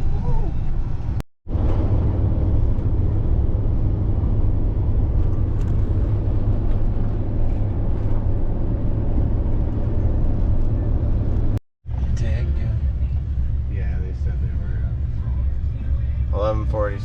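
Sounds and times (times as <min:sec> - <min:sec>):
vehicle road and engine rumble: 0:00.0 - 0:17.0.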